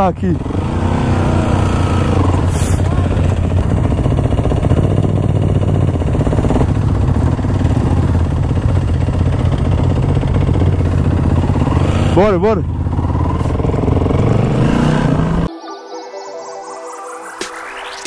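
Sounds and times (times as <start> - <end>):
dirt bike engine idling: 2.2 - 14.4.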